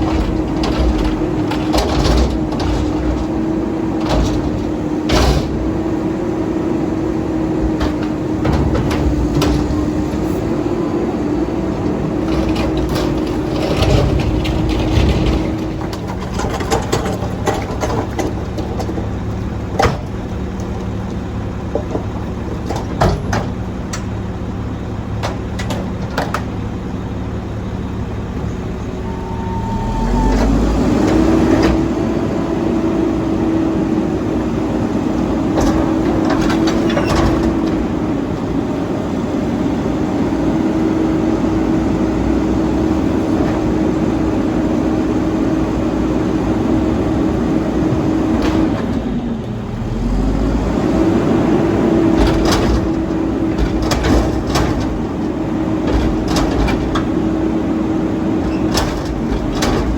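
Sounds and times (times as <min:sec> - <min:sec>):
clanks and knocks: 0:00.0 - 0:05.8, 0:07.6 - 0:10.4, 0:12.1 - 0:24.1, 0:25.2 - 0:26.6, 0:35.4 - 0:38.0, 0:52.0 - 0:57.3, 0:58.4 - 0:59.9
diesel truck engine idling: 0:00.0 - 0:59.9.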